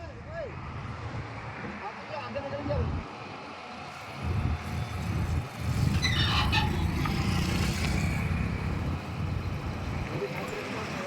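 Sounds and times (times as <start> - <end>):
diesel engine rumbling: 4.2 - 11.0.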